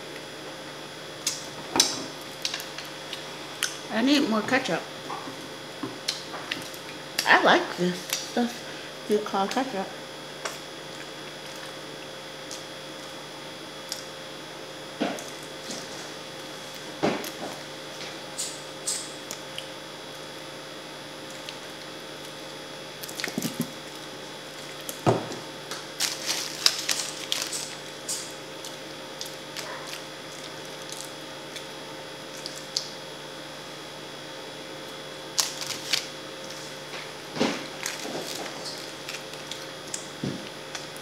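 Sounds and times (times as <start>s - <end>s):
faint steady hum: 0.0s - 41.0s
wet chewing and smacking: 10.4s - 13.2s, 23.0s - 25.0s.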